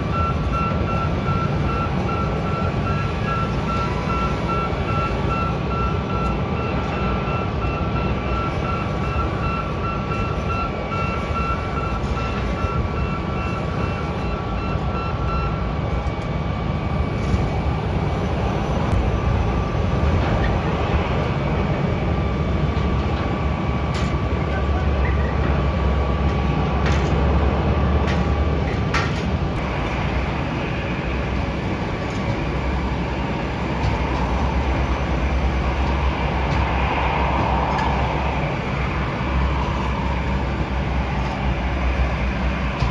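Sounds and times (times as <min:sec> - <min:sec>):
vehicle rapid beeping: 0:00.0 - 0:16.1
jet engines whining: 0:00.0 - 0:42.9.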